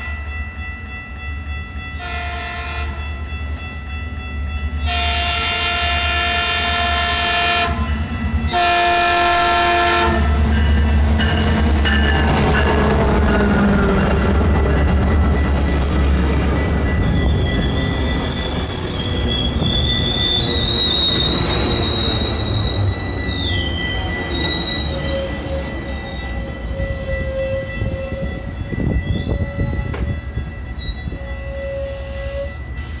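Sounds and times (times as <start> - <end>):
train rumbling: 0.0 - 33.0
wheels and brakes squealing: 14.4 - 33.0.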